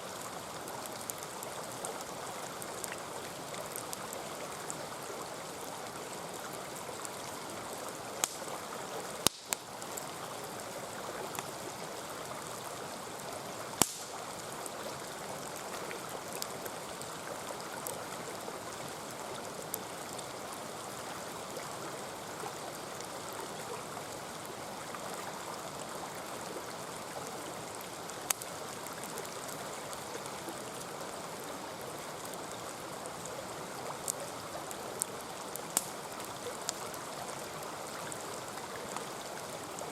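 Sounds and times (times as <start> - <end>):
stream flowing and burbling: 0.0 - 39.9
campfire popping: 6.6 - 10.3, 13.7 - 14.8, 28.1 - 28.6, 34.0 - 37.6.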